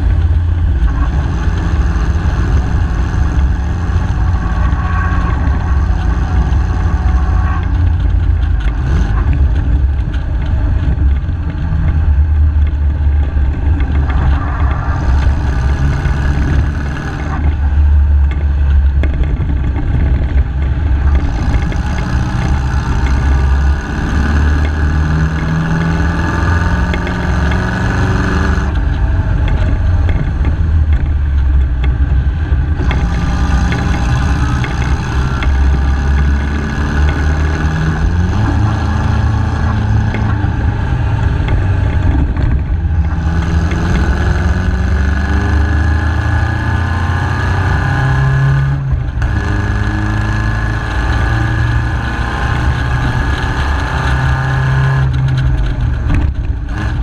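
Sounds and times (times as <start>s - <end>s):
racing car engine running: 0.0s - 57.0s.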